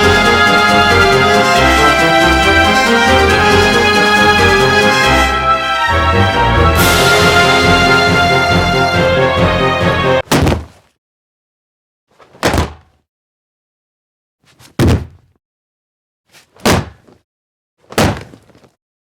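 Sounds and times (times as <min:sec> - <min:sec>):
music: 0:00.0 - 0:10.2.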